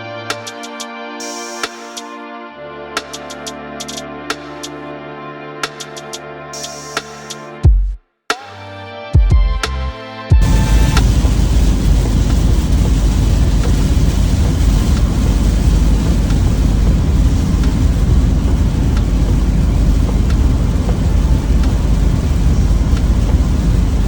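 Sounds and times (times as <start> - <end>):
truck road and engine rumble: 10.4 - 24.0.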